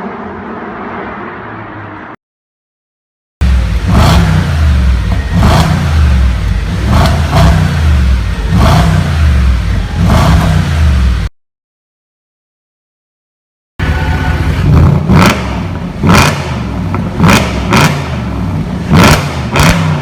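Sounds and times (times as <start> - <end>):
engine revving throttle blips: 3.4 - 11.3, 13.8 - 20.0.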